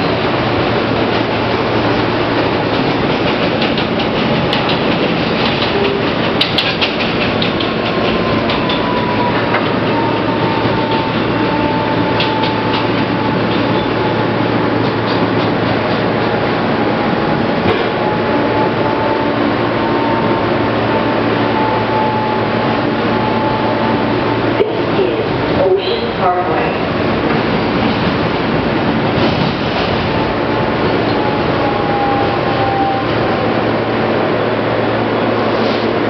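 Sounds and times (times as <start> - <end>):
wheel-on-rail rumble: 0.0 - 36.0
clicks over rail joints: 3.1 - 9.8
train motor whine: 4.5 - 24.6.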